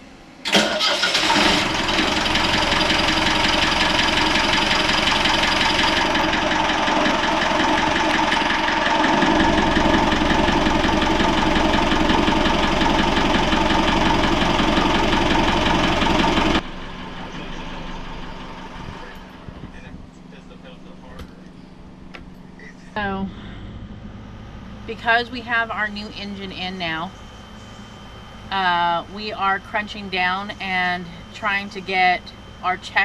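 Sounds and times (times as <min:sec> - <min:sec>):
boat engine low rumble: 0:01.3 - 0:33.0.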